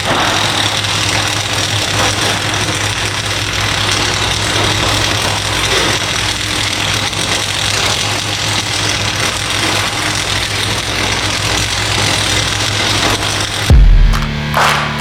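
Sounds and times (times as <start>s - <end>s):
machine humming and hissing: 0.0s - 15.0s
loud thump: 13.7s - 15.0s.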